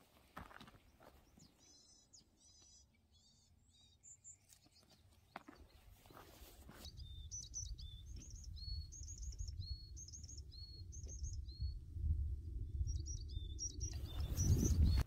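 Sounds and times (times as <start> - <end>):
bird chirping: 0.5 - 11.8, 12.7 - 15.0
low wind rumble: 6.9 - 15.0.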